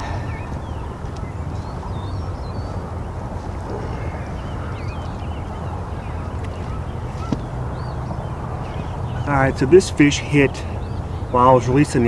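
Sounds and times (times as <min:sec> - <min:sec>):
low outdoor rumble: 0:00.0 - 0:12.0
small birds chirping: 0:00.0 - 0:12.0.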